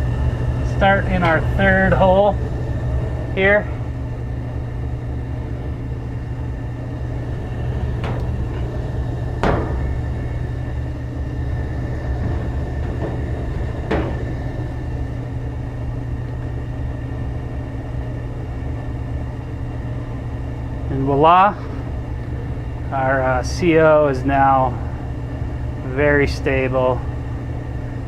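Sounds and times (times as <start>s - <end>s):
furnace low drone: 0.0s - 28.0s.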